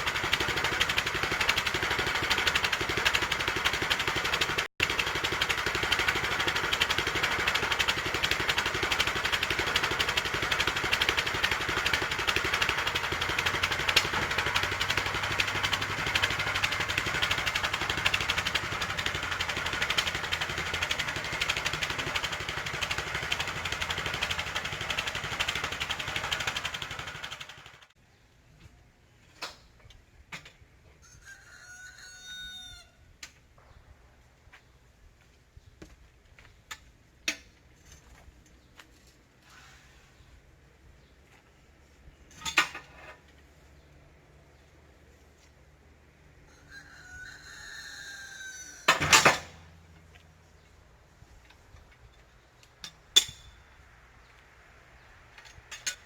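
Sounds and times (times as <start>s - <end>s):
gas engine running: 0.0s - 27.9s.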